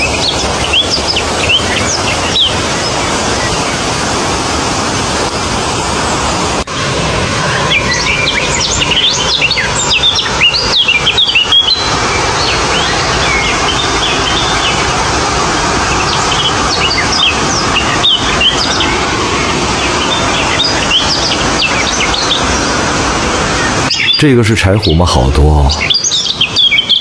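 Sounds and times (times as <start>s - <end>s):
small birds chirping: 0.0s - 4.1s, 7.5s - 27.0s
steady background hiss: 7.4s - 25.9s.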